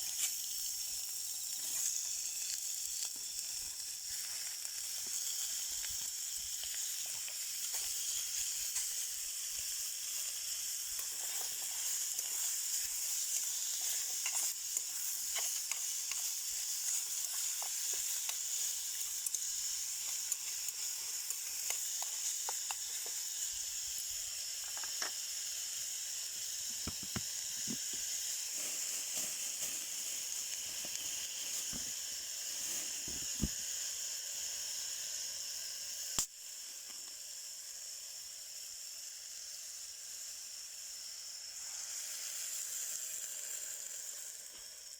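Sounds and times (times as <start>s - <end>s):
meat sizzling on a grill: 0.0s - 44.9s
fat popping and crackling: 26.8s - 28.2s, 33.0s - 33.6s.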